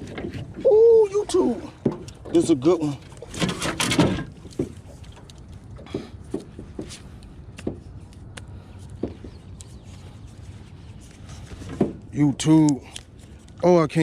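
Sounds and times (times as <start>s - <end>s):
gear knocking in a boat: 1.7s - 5.2s.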